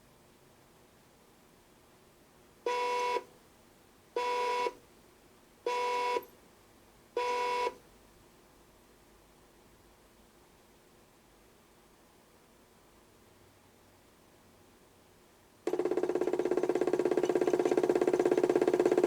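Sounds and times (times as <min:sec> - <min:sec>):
toy washing machine beeps: 0:15.7 - 0:19.0.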